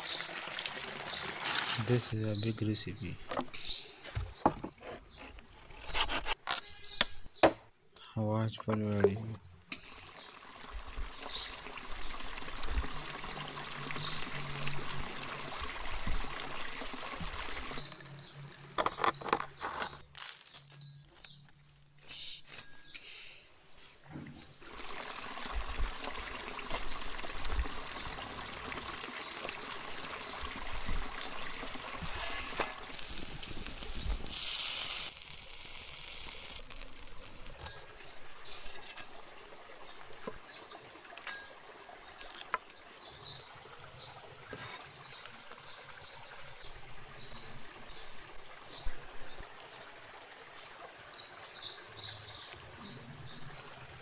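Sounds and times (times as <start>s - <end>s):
water pouring and trickling: 0.0s - 2.3s, 8.8s - 21.3s, 24.2s - 54.0s
birds chirping: 1.0s - 10.4s.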